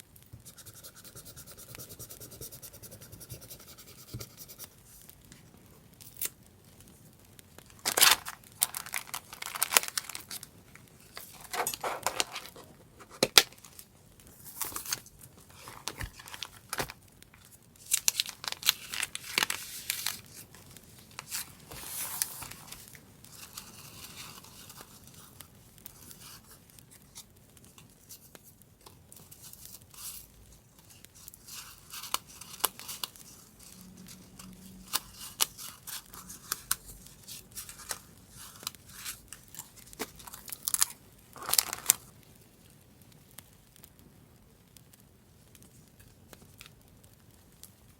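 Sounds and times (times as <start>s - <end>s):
paper rustling: 7.8s - 25.4s, 29.2s - 42.1s.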